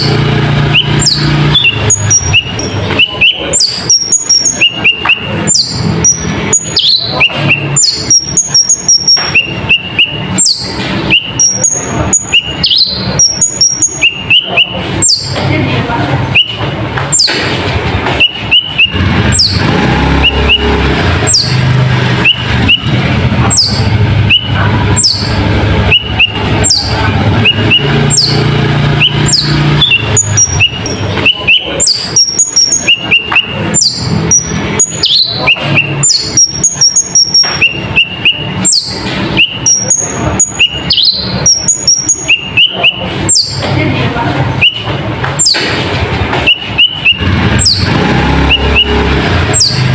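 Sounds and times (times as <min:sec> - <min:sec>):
songbird singing: 0:00.0 - 0:49.9.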